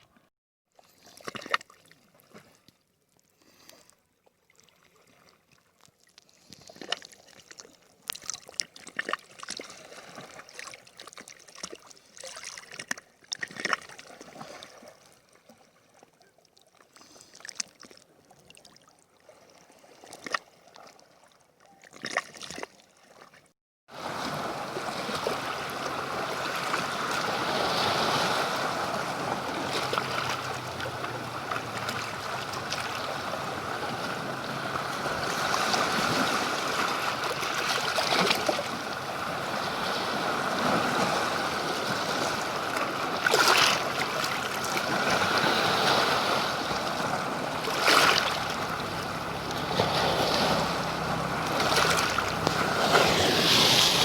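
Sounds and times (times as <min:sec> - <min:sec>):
water rushing: 0:23.9 - 0:54.0.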